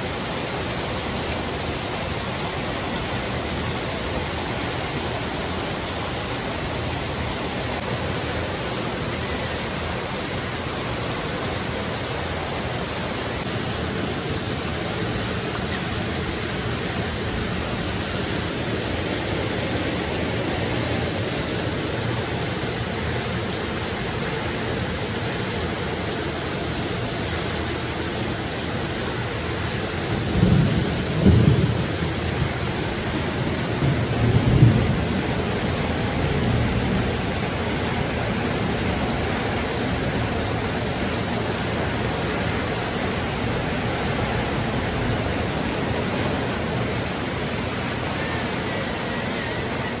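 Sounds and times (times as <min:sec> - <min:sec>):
heavy rain pouring: 0:00.0 - 0:50.0
thunder rumbling: 0:30.1 - 0:39.6.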